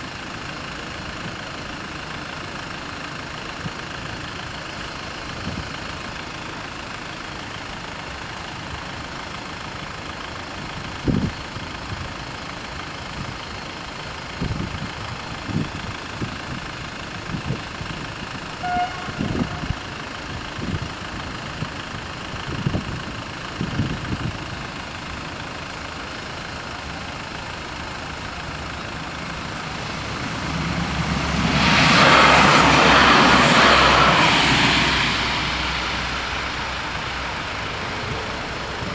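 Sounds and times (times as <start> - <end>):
vehicle passing close: 18.6 - 20.0, 27.4 - 38.9.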